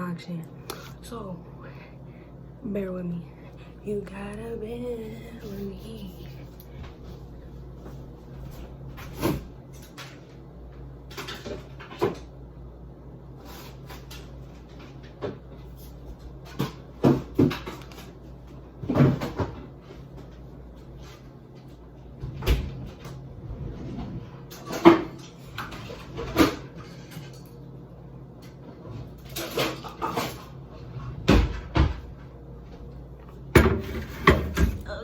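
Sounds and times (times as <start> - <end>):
steady low hum: 0.0 - 35.0
knocks and clunks of containers: 16.1 - 18.2, 18.8 - 20.3, 31.2 - 32.2, 33.5 - 35.0.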